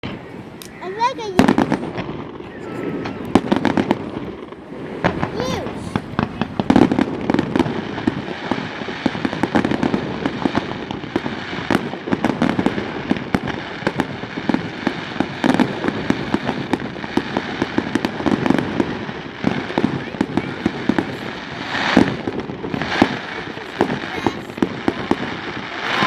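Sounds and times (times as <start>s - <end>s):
fireworks popping and banging: 0.0s - 26.0s.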